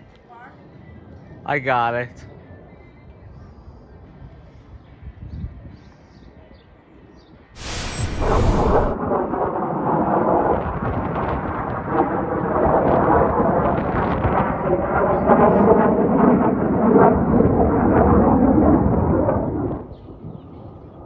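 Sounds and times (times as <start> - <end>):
fighter jets flying overhead: 7.6 - 9.9, 11.5 - 19.9.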